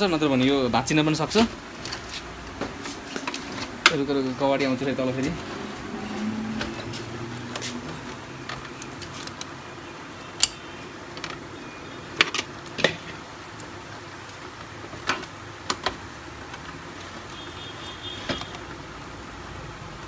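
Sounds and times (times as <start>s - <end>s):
plastic cover locks clicking: 18.0s - 18.8s.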